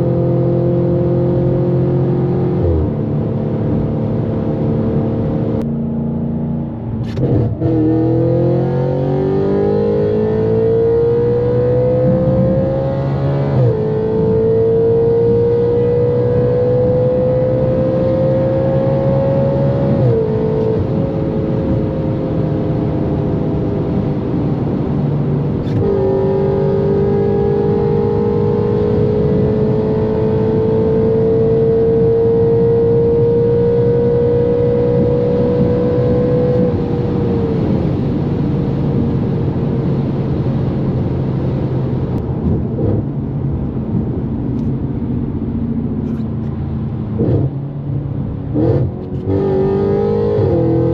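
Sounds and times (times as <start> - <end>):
car engine revving under acceleration: 0.0 - 50.9.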